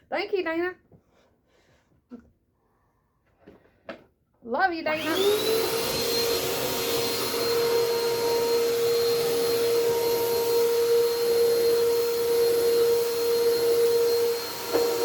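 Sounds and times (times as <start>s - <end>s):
vacuum cleaner running: 4.9s - 15.0s.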